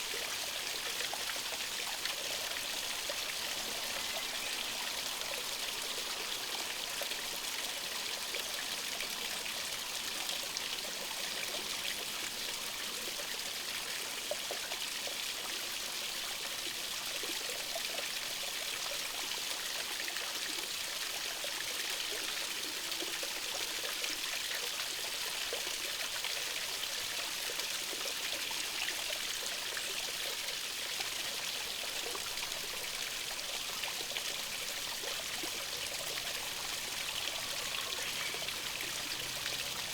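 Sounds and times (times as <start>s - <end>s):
stream trickling and splashing: 0.0s - 39.9s.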